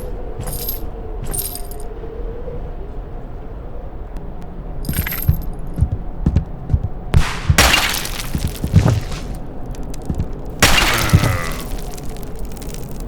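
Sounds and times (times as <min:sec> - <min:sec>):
dull thumps: 0:04.9 - 0:12.8
shattering crash: 0:07.2 - 0:13.0.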